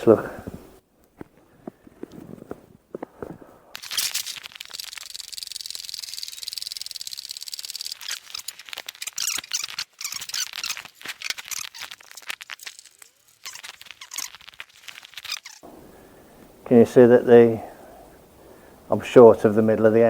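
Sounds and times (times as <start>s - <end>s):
metal gear rattling and squeaking: 3.8s - 15.6s.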